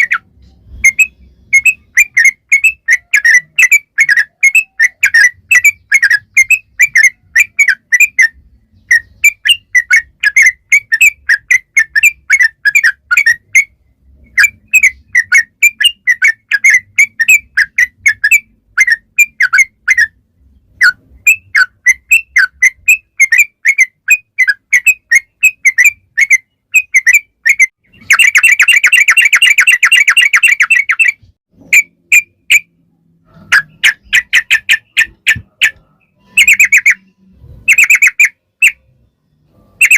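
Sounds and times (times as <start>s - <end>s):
bird singing chirpy whistles: 0.0s - 13.7s.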